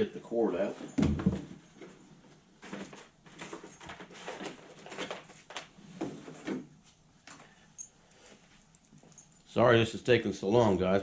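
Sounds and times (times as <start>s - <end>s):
packaging rustling: 2.6s - 5.8s.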